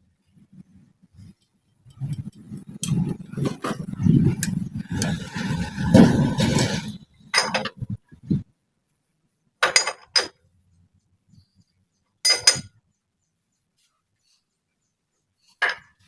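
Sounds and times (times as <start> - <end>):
rough scraping: 2.0 - 7.9.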